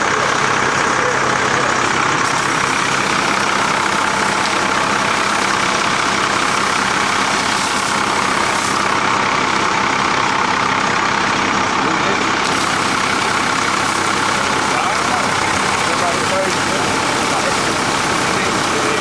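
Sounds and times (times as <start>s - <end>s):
fire engine humming: 0.0s - 19.0s
loud water pump hiss: 0.0s - 19.0s.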